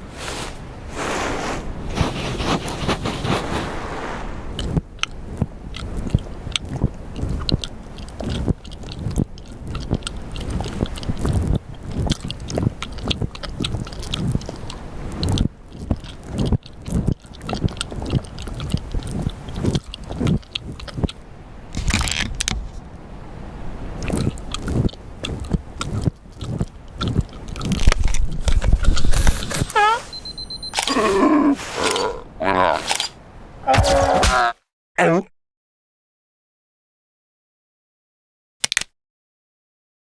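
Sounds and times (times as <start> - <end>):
irregular crunching and scraping: 0.0 - 4.8, 24.0 - 30.2, 30.8 - 33.2.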